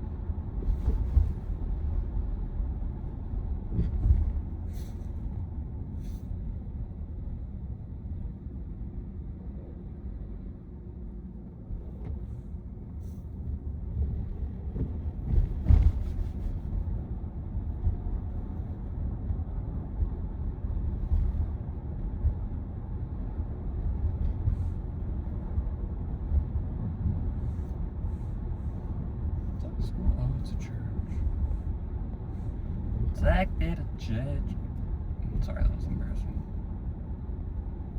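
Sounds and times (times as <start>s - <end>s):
road and tyre noise in car: 0.0s - 37.9s
short thump: 14.7s - 16.6s.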